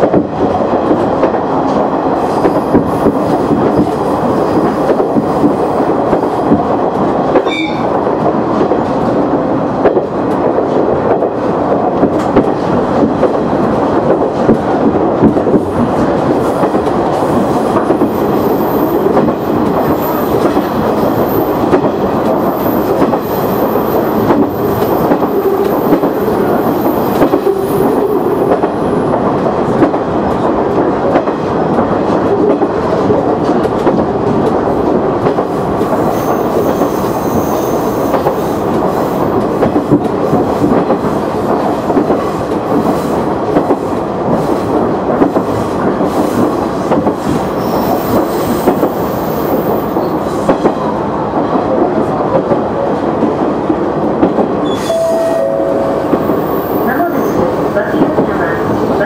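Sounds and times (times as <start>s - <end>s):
railcar wheels and engine rumble: 0.0s - 59.0s.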